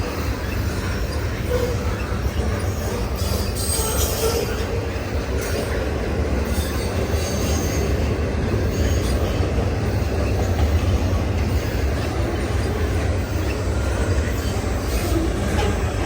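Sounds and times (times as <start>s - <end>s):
freight train wheels rumbling: 0.0s - 16.0s
faint wheel squeals: 12.4s - 16.0s.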